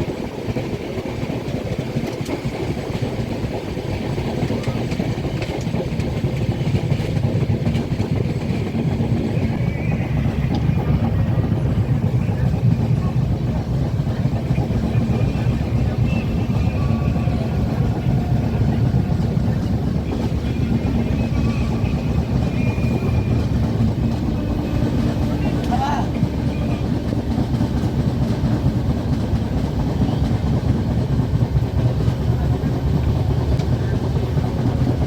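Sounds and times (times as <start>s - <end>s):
train wheels rumbling: 0.0s - 35.0s.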